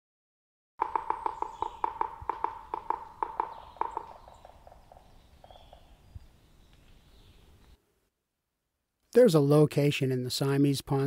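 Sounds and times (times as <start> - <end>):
bird calling: 0.8 - 7.8.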